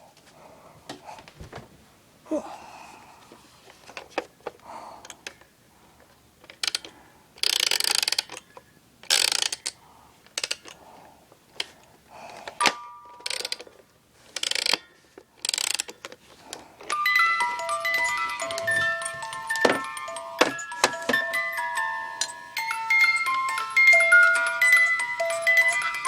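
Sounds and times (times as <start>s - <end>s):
clockwork toy ratcheting: 6.5s - 10.8s, 13.2s - 13.7s, 14.4s - 14.8s, 15.4s - 16.2s, 22.6s - 26.0s.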